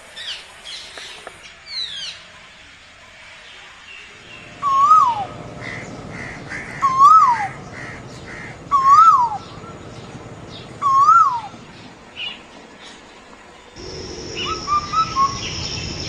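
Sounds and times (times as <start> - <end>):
faint bird chirps: 13.8 - 16.0.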